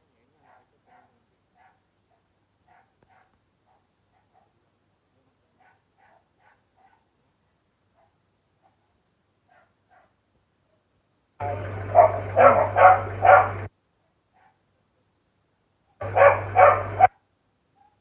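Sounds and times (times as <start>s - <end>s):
dog barking: 0.4s - 4.6s, 5.6s - 7.2s, 7.9s - 13.7s, 14.3s - 14.6s, 16.0s - 18.0s
low hum: 11.4s - 13.7s, 16.0s - 17.1s.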